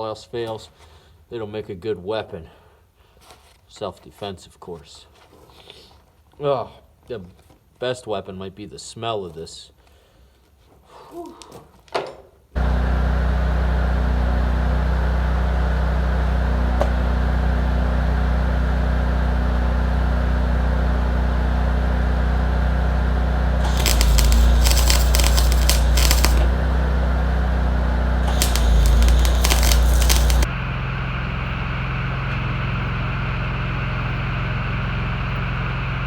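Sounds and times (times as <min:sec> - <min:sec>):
engine running with crackling rattle: 0:22.2 - 0:36.0.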